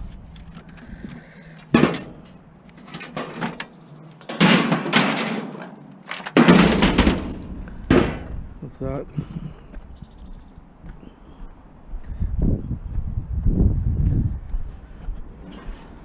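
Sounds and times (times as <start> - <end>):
plastic and metal parts clattering: 1.6 - 8.3.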